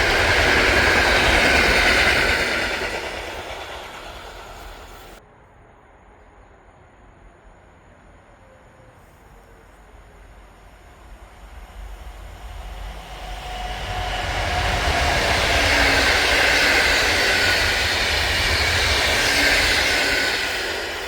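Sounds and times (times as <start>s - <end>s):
train wheels rushing on rail: 0.0s - 5.2s, 10.0s - 21.0s.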